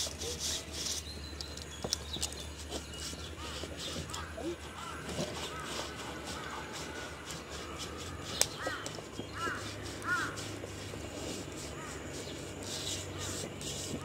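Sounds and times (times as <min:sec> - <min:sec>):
bird cawing: 0:03.3 - 0:10.6, 0:11.6 - 0:12.2.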